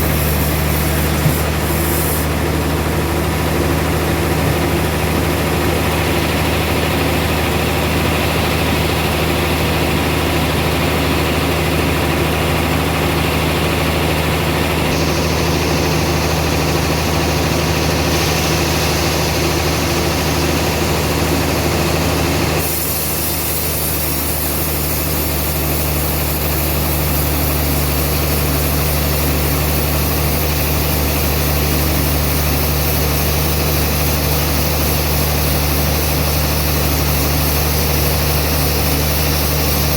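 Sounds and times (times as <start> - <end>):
band sawmill running: 0.0 - 39.9.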